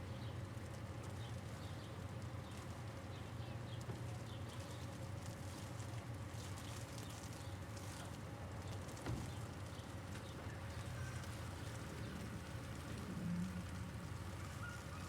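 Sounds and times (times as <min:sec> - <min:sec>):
low rumble of traffic: 0:07.4 - 0:15.0.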